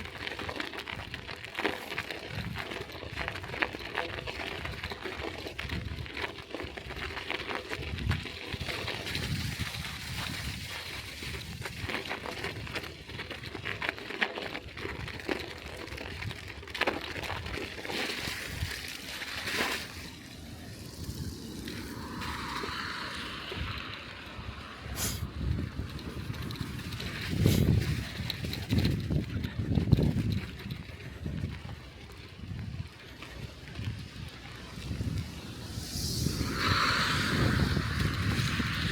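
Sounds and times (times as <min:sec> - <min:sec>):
bicycle clicks and rattles: 0:00.0 - 0:38.9
bicycle tyres on snow: 0:00.0 - 0:38.9
wind gusts on microphone: 0:07.8 - 0:13.4, 0:19.6 - 0:38.9.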